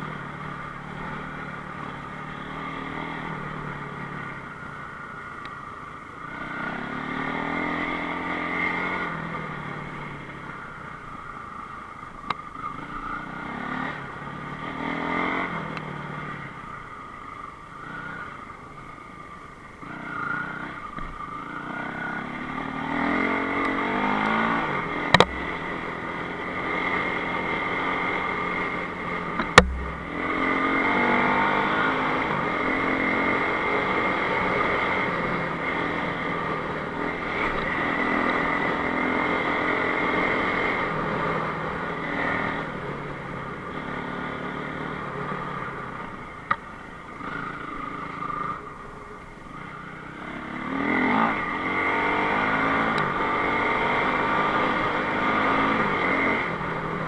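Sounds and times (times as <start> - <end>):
motorcycle engine revving: 19.8 - 46.6, 49.9 - 57.0
sharp knocks: 29.4 - 30.2.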